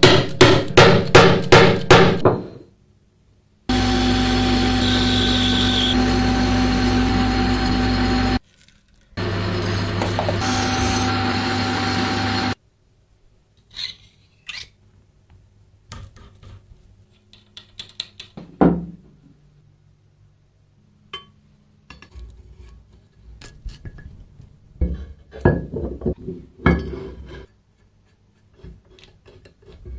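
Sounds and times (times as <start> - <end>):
motorised tool running: 3.7 - 8.4, 9.2 - 12.6
clicks and knocks of parts handled: 15.3 - 18.6.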